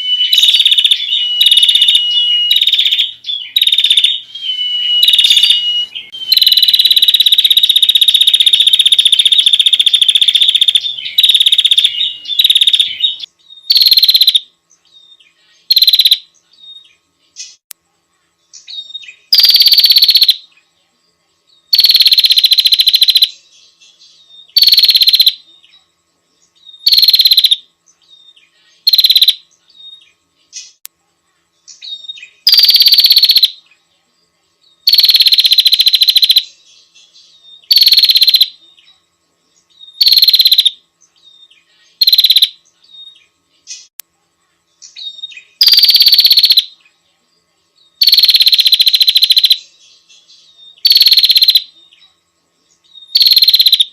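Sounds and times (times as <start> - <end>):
bird buzzing trills: 0.0 - 17.6.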